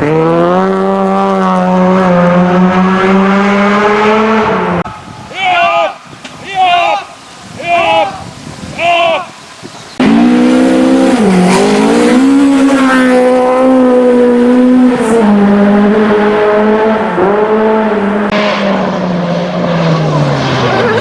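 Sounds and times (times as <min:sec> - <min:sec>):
rally car engine revving: 0:00.0 - 0:04.9, 0:10.0 - 0:21.0.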